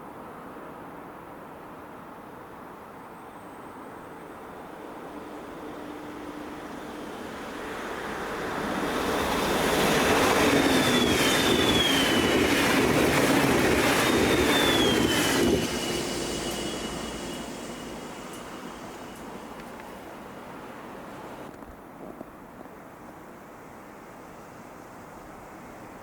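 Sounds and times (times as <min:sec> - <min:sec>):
train passing: 0:03.3 - 0:21.5
high whining tones: 0:05.1 - 0:19.5.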